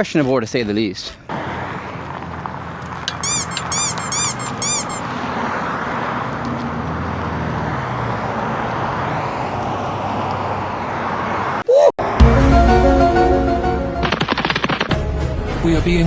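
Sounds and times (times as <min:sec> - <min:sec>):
road traffic noise: 0:00.0 - 0:13.8
quick high chirps: 0:02.9 - 0:05.2.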